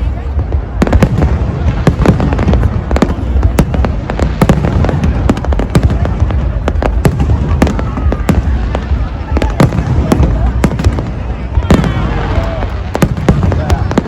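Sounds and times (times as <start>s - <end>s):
fireworks sharp bangs: 0.0s - 14.0s.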